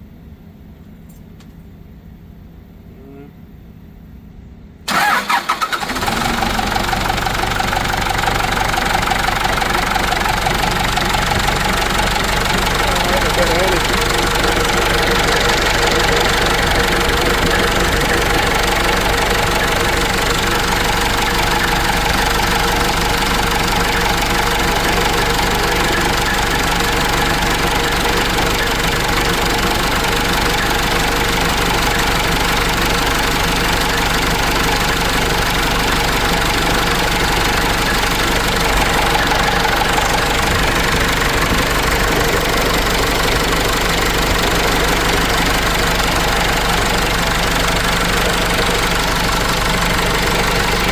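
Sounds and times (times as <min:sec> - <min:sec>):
diesel engine running: 0:04.9 - 0:50.9.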